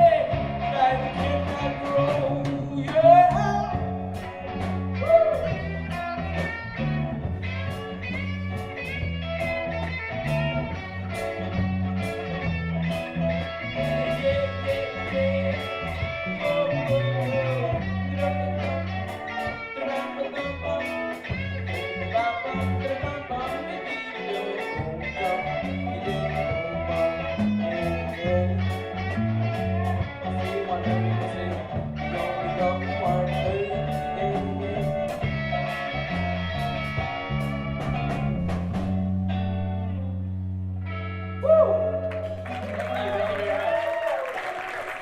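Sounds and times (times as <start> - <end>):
steady drum beat: 0.0 - 18.4, 36.2 - 39.2
guitar lead with bent notes: 0.0 - 44.1
bass line: 0.0 - 45.0
live reggae band playing: 0.0 - 45.0.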